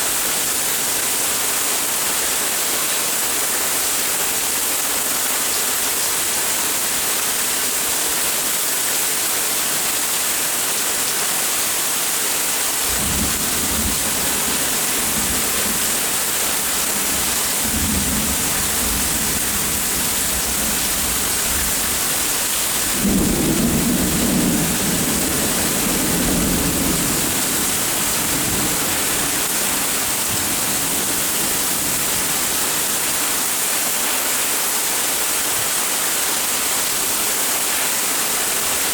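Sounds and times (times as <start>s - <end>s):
steady rain: 0.0s - 38.9s
rolling thunder: 12.9s - 32.8s.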